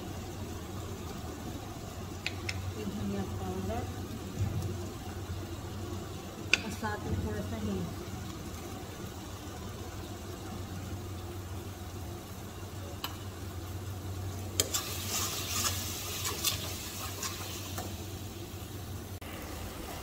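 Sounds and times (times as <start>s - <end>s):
masala sizzling in oil: 0.0s - 20.0s
metal spatula scraping a pan: 14.6s - 17.6s.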